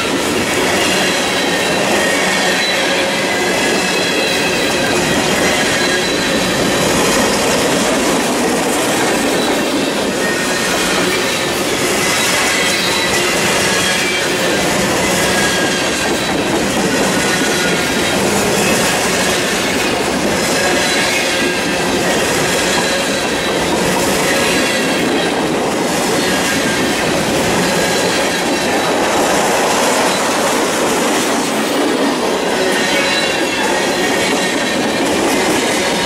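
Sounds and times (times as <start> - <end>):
high wheel squeal: 0.0 - 36.0
train wheels rumbling on rail: 0.0 - 36.0.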